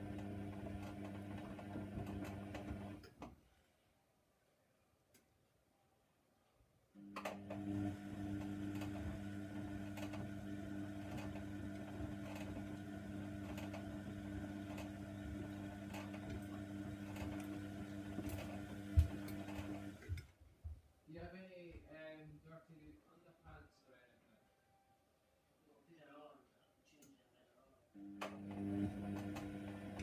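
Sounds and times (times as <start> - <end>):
washing machine motor hum: 0.0 - 3.1, 7.0 - 20.3, 28.0 - 30.0.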